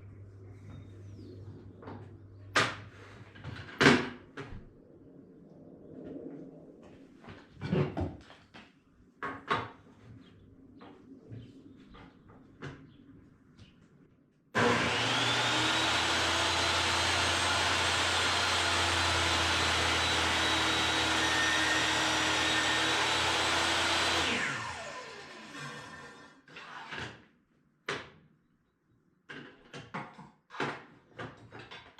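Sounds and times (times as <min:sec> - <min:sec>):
power tool motor running: 0:14.6 - 0:26.3.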